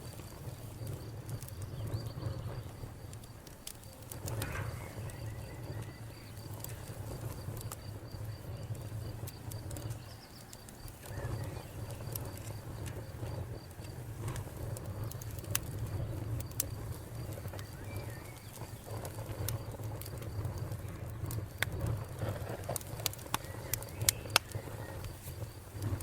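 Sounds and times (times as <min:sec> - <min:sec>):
low fire rumble: 0:00.0 - 0:26.0
wood fire crackling and popping: 0:00.0 - 0:26.0.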